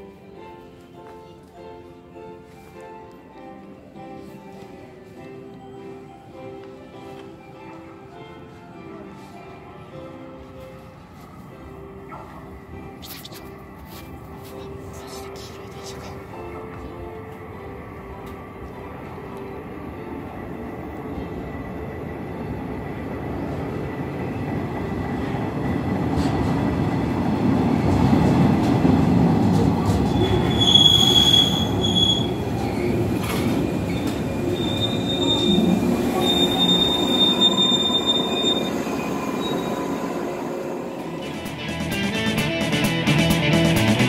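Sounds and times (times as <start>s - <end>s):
electric train rumbling: 15.5s - 44.0s.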